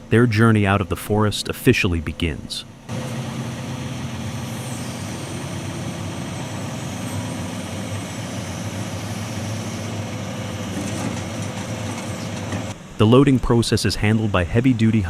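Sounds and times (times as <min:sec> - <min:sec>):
diesel engine running: 0:00.0 - 0:15.0
faint high whine: 0:00.0 - 0:15.0.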